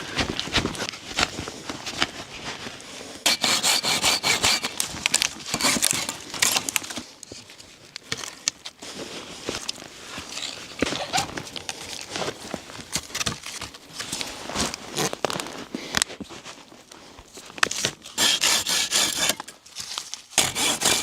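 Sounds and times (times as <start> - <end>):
hand saw cutting wood: 3.3 - 4.9, 5.5 - 6.2, 18.1 - 19.5, 20.4 - 21.0.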